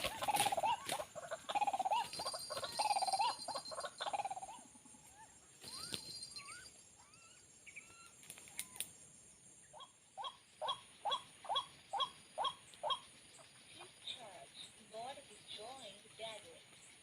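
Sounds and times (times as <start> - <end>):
rising bird chirps: 1.5 - 9.0.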